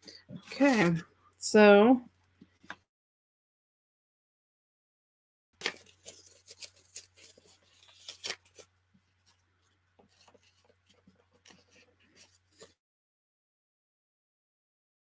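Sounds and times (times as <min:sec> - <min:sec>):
paper tearing and rustling: 0:00.4 - 0:01.0, 0:05.6 - 0:08.7, 0:10.2 - 0:12.8.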